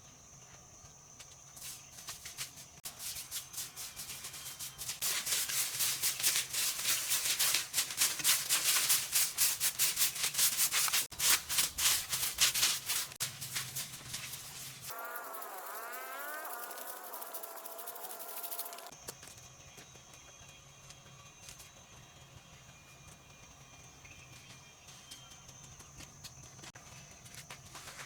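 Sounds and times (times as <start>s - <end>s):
rhythmic scrubbing strokes: 14.4s - 18.9s.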